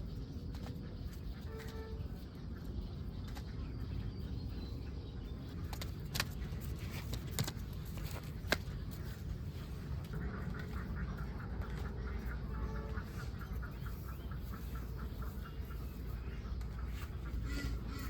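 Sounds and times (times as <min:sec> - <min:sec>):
ducks calling: 0:08.2 - 0:18.0.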